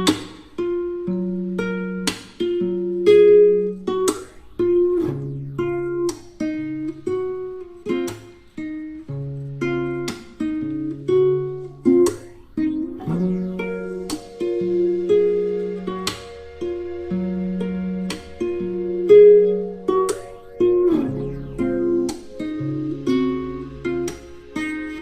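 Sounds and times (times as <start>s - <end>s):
plucked acoustic guitar melody: 0.0s - 25.0s
steady bass line: 12.2s - 25.0s.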